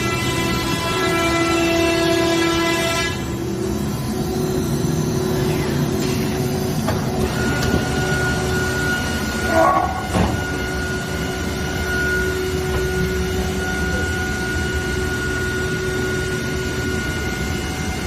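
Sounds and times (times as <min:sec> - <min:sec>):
machine humming and whining: 0:00.0 - 0:18.0.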